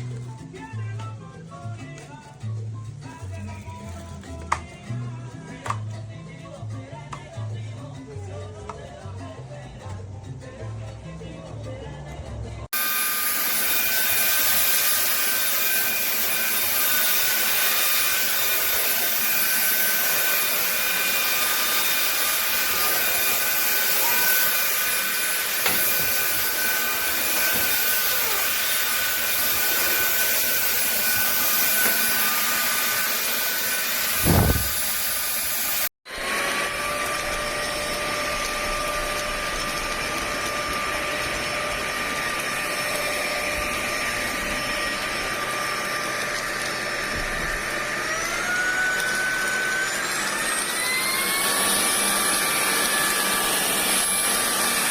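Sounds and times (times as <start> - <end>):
stick vacuum running: 12.7 - 54.9.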